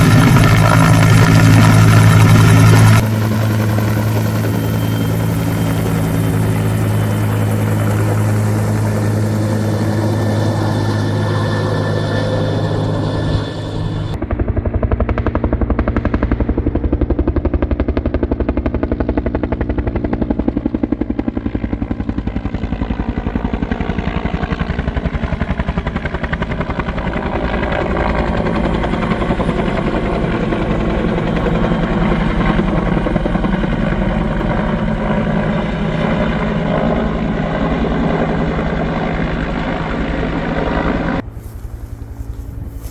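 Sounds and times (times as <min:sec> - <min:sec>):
helicopter rotor and turbine: 0:00.0 - 0:42.9.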